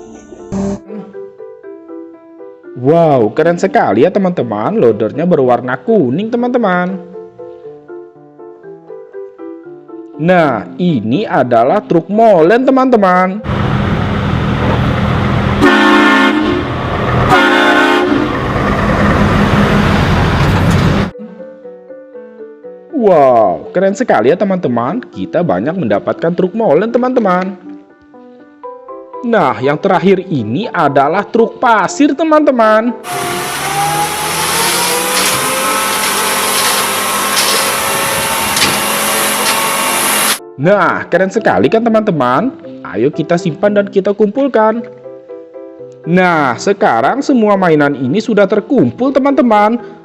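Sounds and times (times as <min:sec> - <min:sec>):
truck engine rumbling: 0:13.5 - 0:21.1, 0:33.0 - 0:40.4
horn blasts: 0:15.5 - 0:18.5, 0:33.0 - 0:40.4
hiss: 0:33.1 - 0:40.4
small motor whirring: 0:33.1 - 0:40.4.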